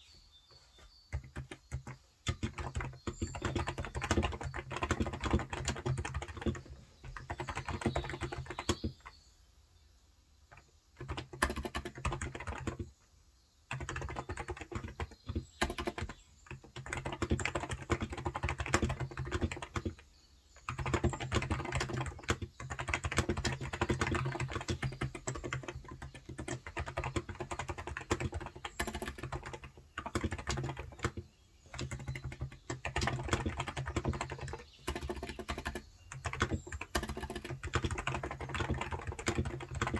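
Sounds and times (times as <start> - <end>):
soft keyboard typing: 0.5 - 9.2, 10.5 - 12.9, 13.7 - 39.9.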